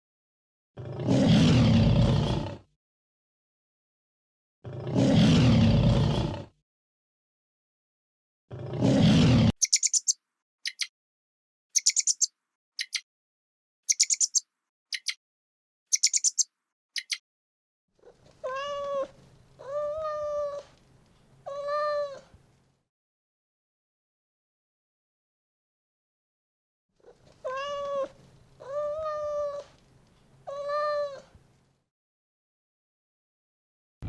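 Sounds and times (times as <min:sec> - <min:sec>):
high-pitched chirps: 0:09.6 - 0:10.9, 0:11.8 - 0:13.0, 0:13.9 - 0:15.2, 0:15.9 - 0:17.2
cat meowing: 0:18.4 - 0:20.6, 0:27.4 - 0:29.6.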